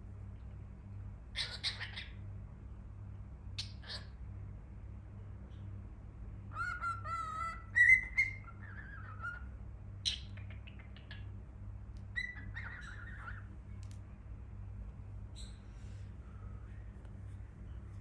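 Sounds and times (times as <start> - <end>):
cockatiel whistling and chirping: 1.4 - 2.1, 6.5 - 9.5, 12.1 - 13.5.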